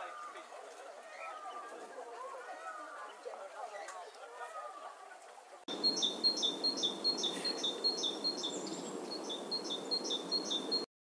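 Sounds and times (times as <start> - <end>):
soft bird calls: 0.0 - 10.9
outdoor ambience hiss: 4.8 - 10.9
bird two-part chirp: 5.7 - 10.8.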